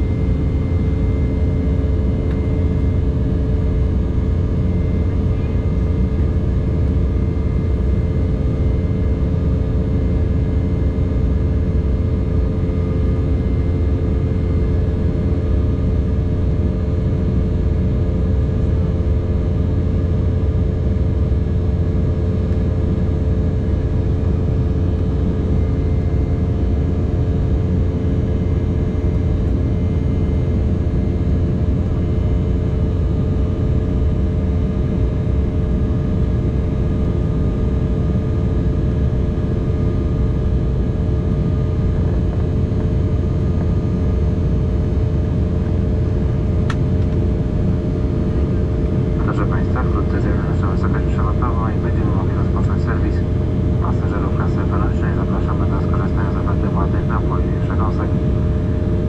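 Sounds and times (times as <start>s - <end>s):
airliner cabin rumble: 0.0s - 34.3s, 35.2s - 59.0s
constant tonal hum: 0.0s - 59.0s.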